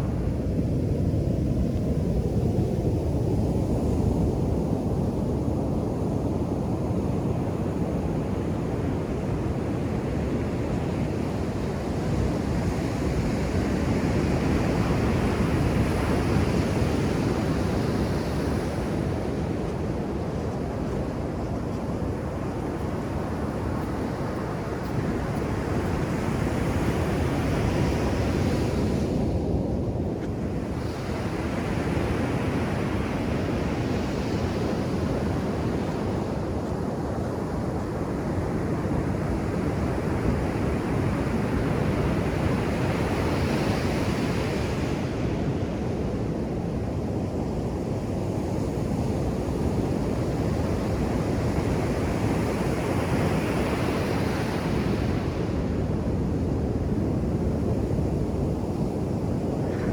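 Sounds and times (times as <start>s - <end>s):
wind noise: 0.0s - 59.9s
ocean surf breaking on beach: 49.2s - 59.9s.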